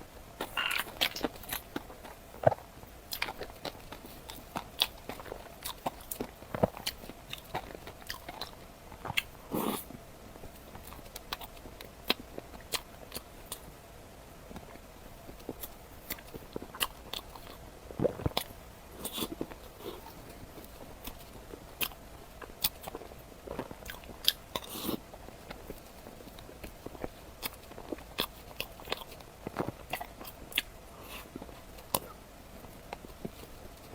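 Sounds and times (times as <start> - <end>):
person chewing and biting: 0.4 - 9.9, 15.4 - 32.2
sharp crunches while eating: 0.4 - 9.9.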